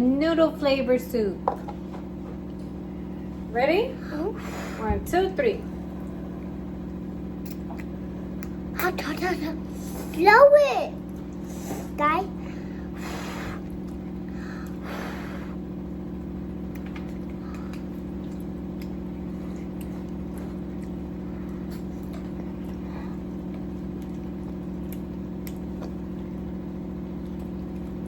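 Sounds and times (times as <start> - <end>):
low mechanical hum: 0.0 - 28.0
person blowing on soup: 12.8 - 13.7.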